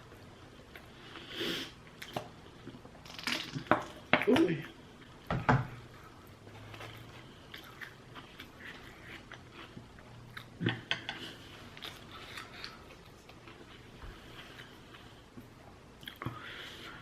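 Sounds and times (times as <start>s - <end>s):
person chewing: 4.7s - 17.0s.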